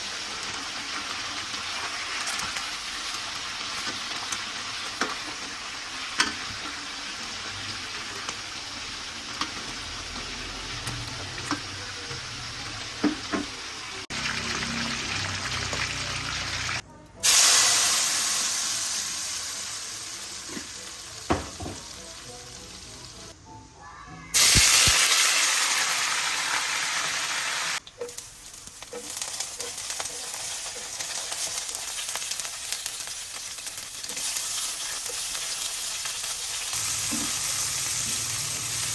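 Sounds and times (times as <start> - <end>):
food sizzling in hot oil: 0.0 - 23.4, 24.3 - 38.9.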